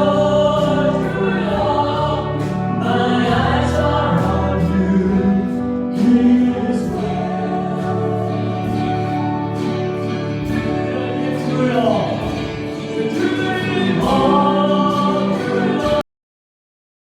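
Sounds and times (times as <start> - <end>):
gospel choir singing: 0.0 - 16.0.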